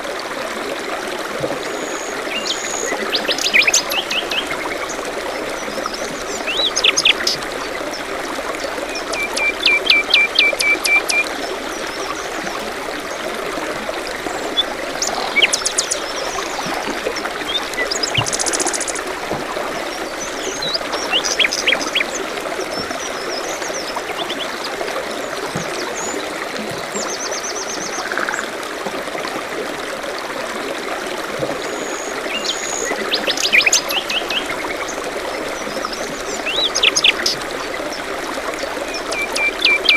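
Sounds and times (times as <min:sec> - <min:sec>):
stream trickling: 0:00.0 - 0:39.9
small songbirds chirping: 0:14.4 - 0:19.2, 0:19.8 - 0:24.6.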